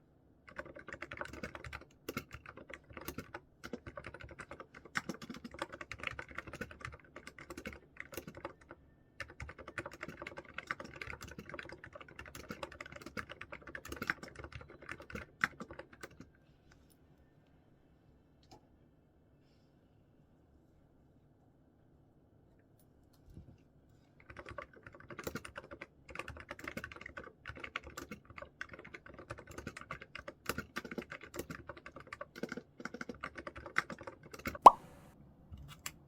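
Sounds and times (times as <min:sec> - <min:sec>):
typing on a keyboard: 0:00.5 - 0:16.4, 0:24.2 - 0:34.7.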